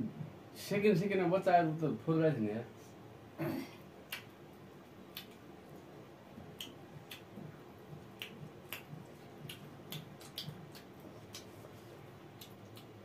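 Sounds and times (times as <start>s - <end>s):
wet lip smacks: 5.1s - 5.4s, 6.6s - 7.3s, 8.1s - 11.6s, 12.3s - 13.0s
faint open-mouthed chewing: 7.9s - 13.0s.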